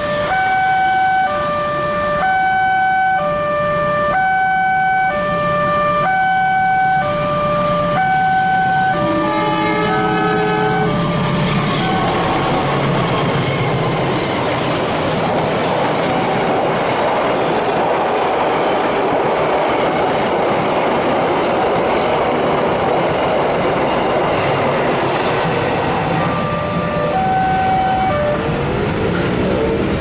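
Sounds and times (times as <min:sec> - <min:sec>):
train wheels on rails: 0:08.6 - 0:30.0.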